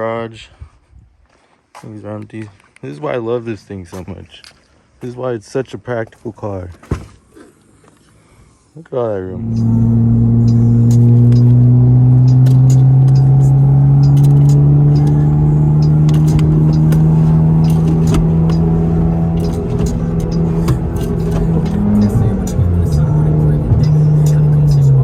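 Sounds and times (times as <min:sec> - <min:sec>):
car engine under load: 0:09.2 - 0:25.0
light ticks: 0:10.4 - 0:15.2.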